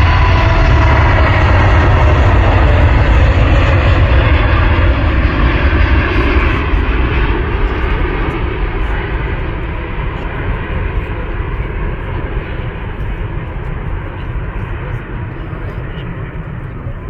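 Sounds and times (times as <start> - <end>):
airplane engine rumble overhead: 0.0 - 17.0.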